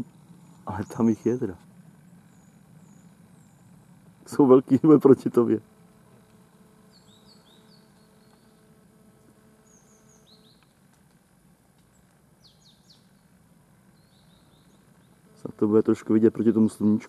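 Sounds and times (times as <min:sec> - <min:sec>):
faint high bird chirps: 0:00.0 - 0:04.1, 0:06.8 - 0:08.8, 0:09.6 - 0:10.8, 0:11.9 - 0:17.0.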